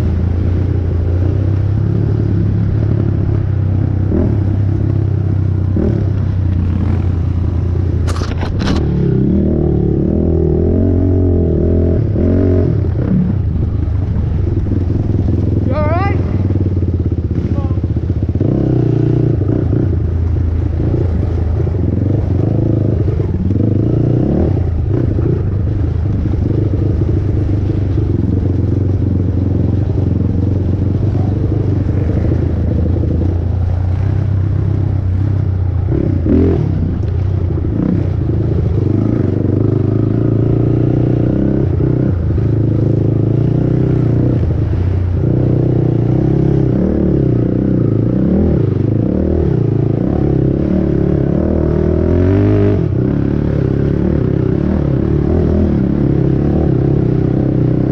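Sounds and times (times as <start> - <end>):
atv engine revving: 0.0 - 57.9
quad clattering over rough ground: 8.0 - 9.0.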